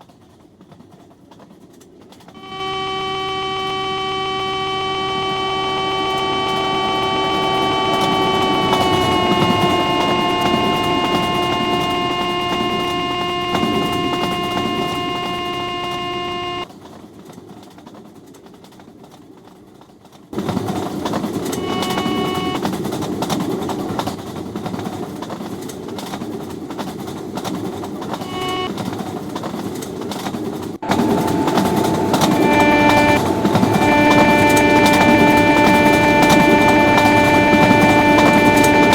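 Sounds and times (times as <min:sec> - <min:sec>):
train wheels rumbling on track: 0:00.0 - 0:38.9
train horn: 0:02.4 - 0:16.7, 0:20.4 - 0:22.7, 0:28.1 - 0:28.8, 0:30.8 - 0:38.9.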